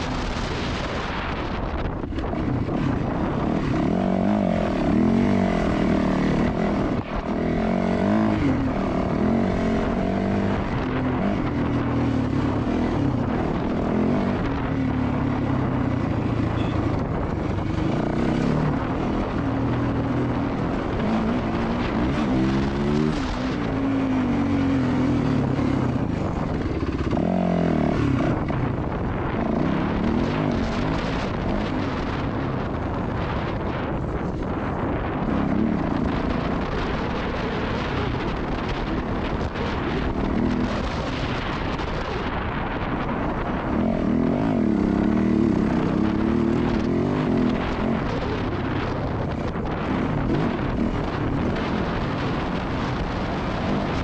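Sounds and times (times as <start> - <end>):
dirt bike engine revving: 0.0 - 34.0, 34.6 - 54.0.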